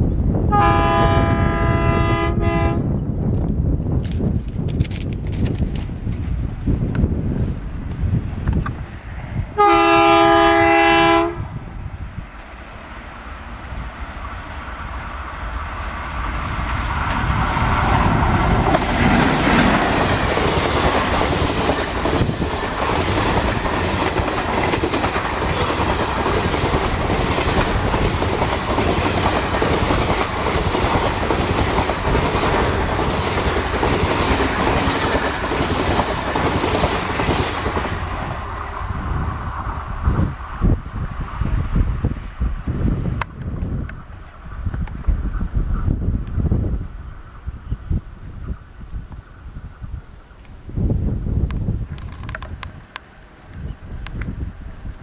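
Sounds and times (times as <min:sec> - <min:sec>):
diesel train passing: 0:00.0 - 0:48.9, 0:50.5 - 0:55.0
locomotive horn: 0:00.5 - 0:02.9, 0:09.6 - 0:11.5
wheels clicking over rail joints: 0:03.4 - 0:08.8, 0:16.0 - 0:38.8, 0:51.4 - 0:55.0.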